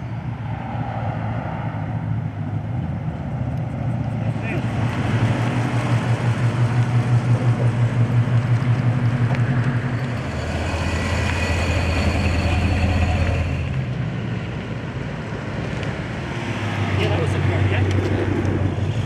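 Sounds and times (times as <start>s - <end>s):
car engine idling: 3.9s - 14.6s.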